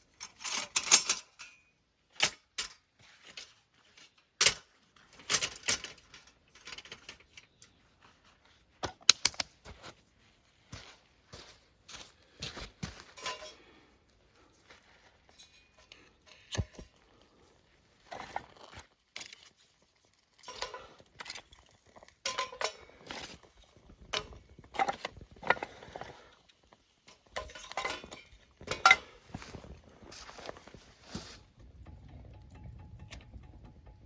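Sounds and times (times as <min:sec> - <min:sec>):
cookware clinking and clattering: 0:13.2 - 0:13.7, 0:22.2 - 0:23.1, 0:27.1 - 0:29.6.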